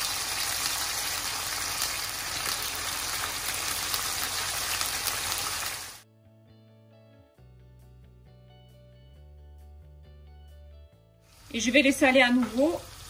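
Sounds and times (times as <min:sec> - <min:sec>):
meat sizzling in oil: 0:00.0 - 0:06.0, 0:11.3 - 0:13.0
quiet background music: 0:06.0 - 0:13.0.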